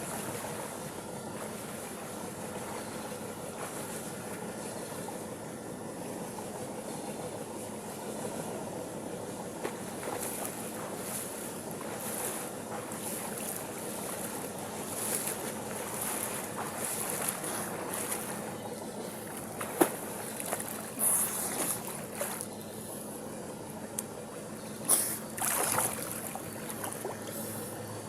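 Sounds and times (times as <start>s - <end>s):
water splashing from swimming: 0.0s - 4.4s, 9.6s - 22.5s, 24.9s - 27.4s.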